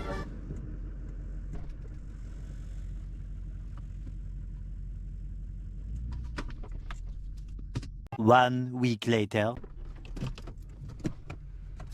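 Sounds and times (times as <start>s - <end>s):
tractor engine idling: 0.0s - 6.0s.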